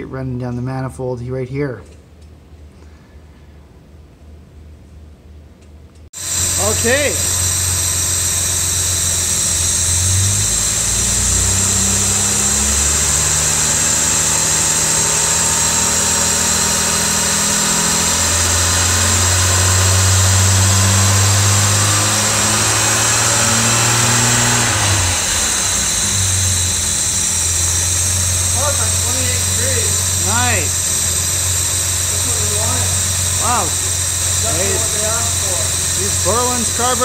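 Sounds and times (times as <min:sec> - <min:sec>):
car engine revving: 0:06.2 - 0:37.0.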